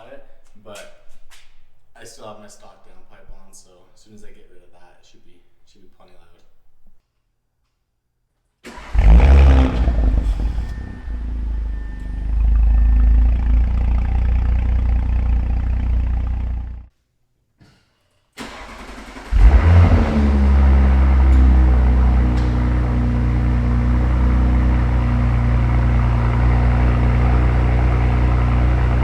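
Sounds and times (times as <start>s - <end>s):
engine starter cranking: 8.6s - 15.3s, 18.4s - 22.6s
car engine idling: 8.7s - 16.9s, 18.4s - 29.0s
car engine revving: 8.7s - 16.9s, 18.4s - 29.0s.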